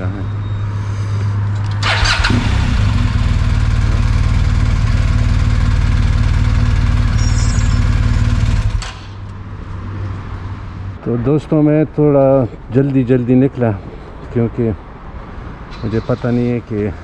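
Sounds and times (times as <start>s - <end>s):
motorcycle engine starting and idling: 1.6s - 9.2s.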